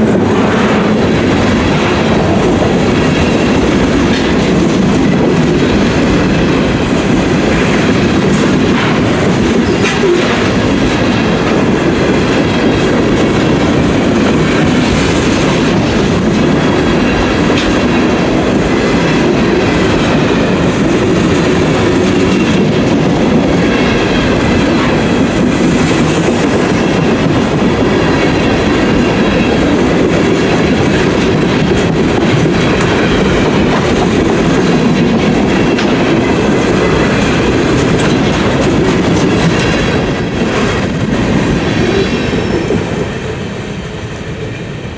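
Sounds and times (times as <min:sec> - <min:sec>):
wheels clacking over rail joints: 0:00.0 - 0:43.3
freight train rolling past: 0:00.0 - 0:44.9.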